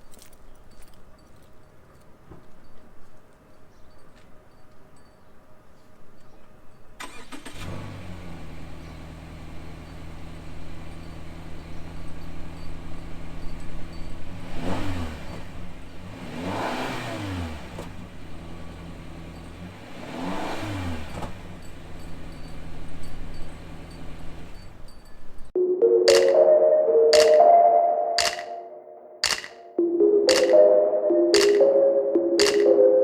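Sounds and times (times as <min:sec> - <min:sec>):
car engine idling and revving: 0:07.0 - 0:25.6.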